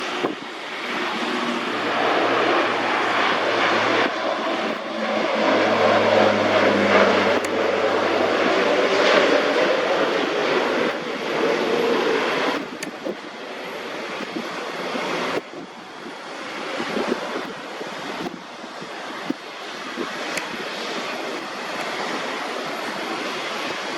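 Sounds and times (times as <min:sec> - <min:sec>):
turboprop engines droning: 0:00.0 - 0:23.9.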